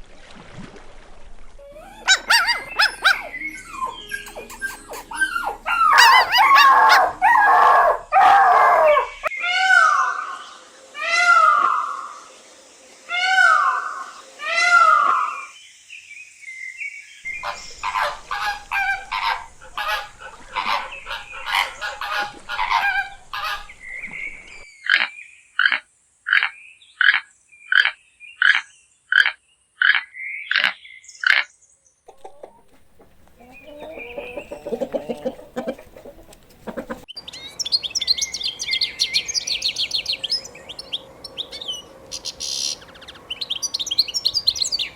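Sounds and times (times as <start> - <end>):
high chirping: 1.6 - 8.3, 17.3 - 24.6, 32.1 - 44.9
drawn-out falling animal calls: 1.6 - 10.3, 17.3 - 24.6, 32.1 - 37.1
fowl honking and calling: 1.6 - 10.4, 17.3 - 27.2, 32.1 - 37.1.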